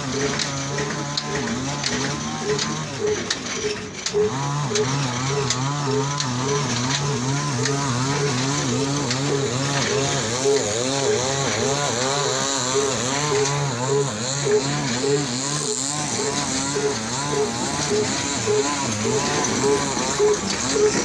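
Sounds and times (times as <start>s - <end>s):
stationary engine pulsing hum: 0.0s - 21.0s.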